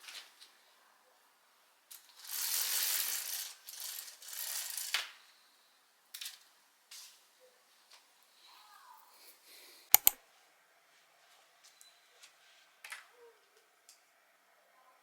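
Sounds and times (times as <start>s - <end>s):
sharp clicks: 9.9s - 10.2s.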